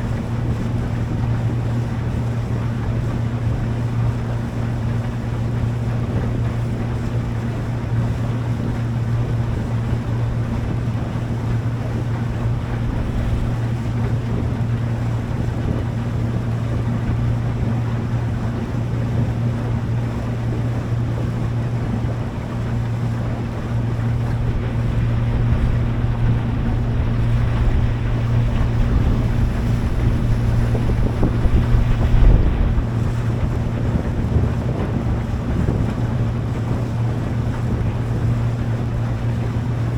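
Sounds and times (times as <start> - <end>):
boat engine humming: 0.0 - 39.9
water rushing past hull: 0.0 - 39.9
wind buffeting microphone: 0.0 - 39.9
low wave knock: 22.3 - 35.5.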